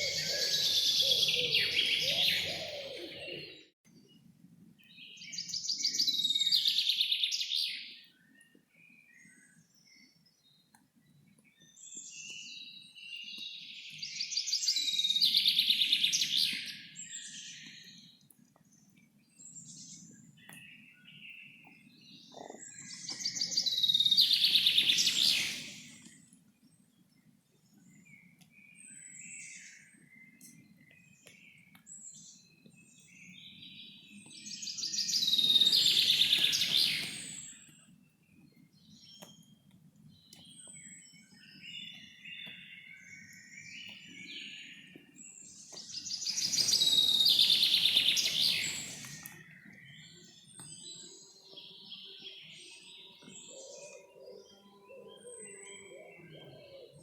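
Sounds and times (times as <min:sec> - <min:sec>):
birds chirping and singing: 0:00.0 - 0:03.8, 0:19.5 - 0:26.3, 0:27.6 - 0:57.0.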